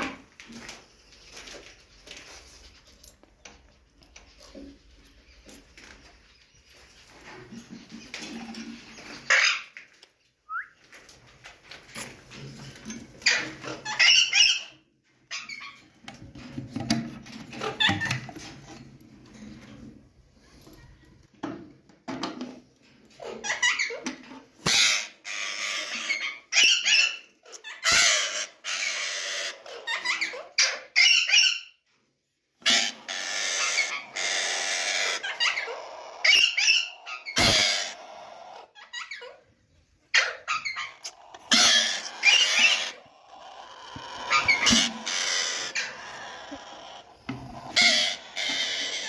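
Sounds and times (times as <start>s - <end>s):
parakeets screeching: 32.7s - 39.4s, 40.1s - 49.0s.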